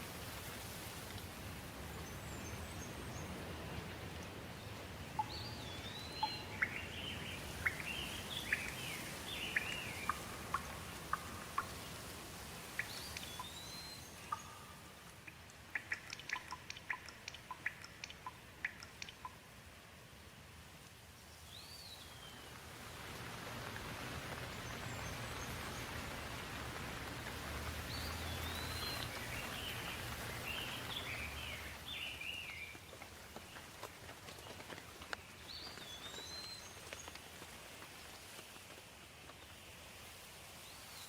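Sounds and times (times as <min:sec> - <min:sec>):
steady rain falling: 0:00.0 - 0:41.0
birds chirping: 0:01.9 - 0:12.1, 0:12.7 - 0:19.4, 0:24.3 - 0:33.7
sharp drips: 0:05.1 - 0:19.6, 0:23.6 - 0:37.5.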